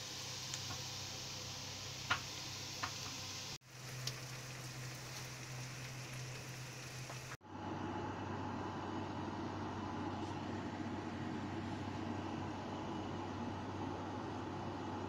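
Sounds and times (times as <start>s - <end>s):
garlic and onions sizzling in oil: 0.0s - 7.4s.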